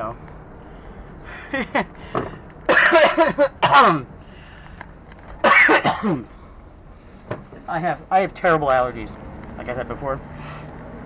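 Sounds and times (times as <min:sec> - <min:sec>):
man coughing: 0:01.6 - 0:04.1, 0:05.4 - 0:06.3.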